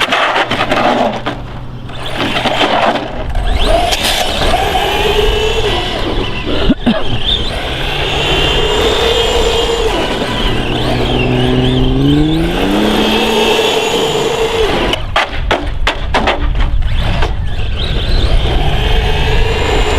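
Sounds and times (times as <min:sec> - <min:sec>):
tyre and ground noise: 0:00.0 - 0:19.9
electric motor whining: 0:01.7 - 0:15.2, 0:16.7 - 0:19.9
sharp knocks: 0:15.1 - 0:16.7.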